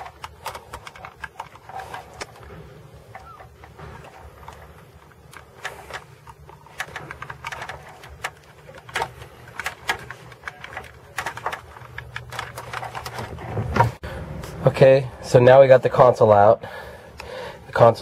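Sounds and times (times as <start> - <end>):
plastic trim clicking and knocking: 0.0 - 14.0
low steady hum: 0.0 - 18.0.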